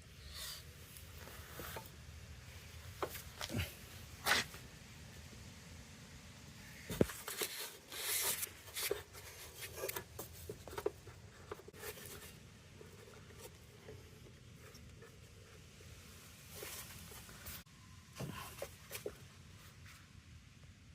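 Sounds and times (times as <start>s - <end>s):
rustling scrape: 6.8s - 20.0s.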